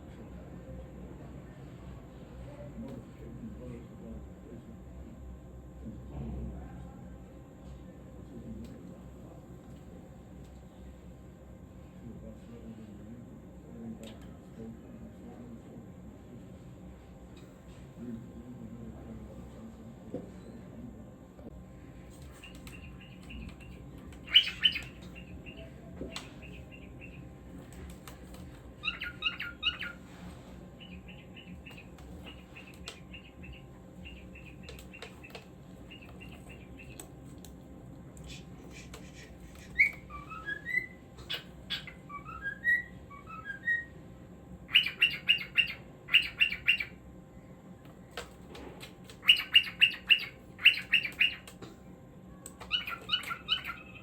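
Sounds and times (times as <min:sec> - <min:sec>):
cockatiel chirping: 0:22.2 - 0:27.2, 0:28.8 - 0:30.1, 0:38.3 - 0:43.9, 0:44.7 - 0:47.0, 0:49.1 - 0:51.6, 0:52.6 - 0:54.0.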